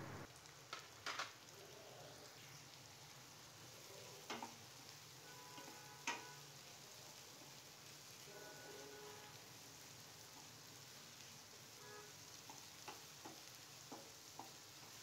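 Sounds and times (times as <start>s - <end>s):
vegetables sizzling in oil: 0.0s - 15.0s
wooden spatula knocking on pan: 12.4s - 15.0s.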